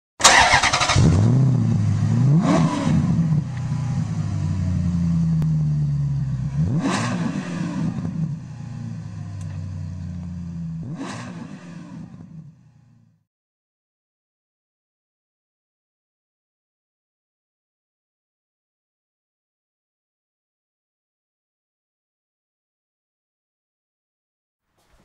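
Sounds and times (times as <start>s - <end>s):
car engine accelerating: 0.2s - 13.2s.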